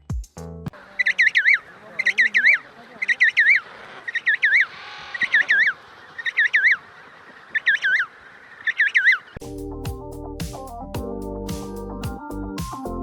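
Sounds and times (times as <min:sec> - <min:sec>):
bird chirping: 0:00.8 - 0:09.5.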